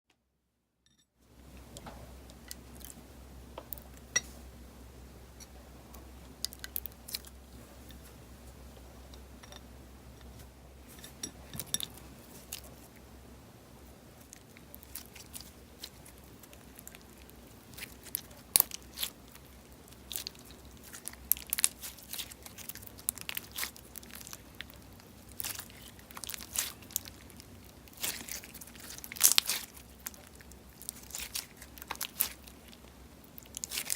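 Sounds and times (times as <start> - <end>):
low steady hum: 0.2 - 33.9
slime crackling and popping: 14.3 - 33.9.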